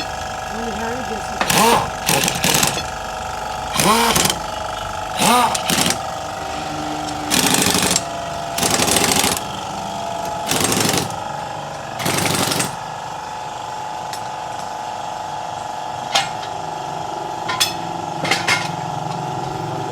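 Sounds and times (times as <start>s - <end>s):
impact wrench rattling: 1.4s - 6.3s, 7.1s - 11.4s, 12.0s - 12.8s
sharp clicks: 3.8s - 4.5s.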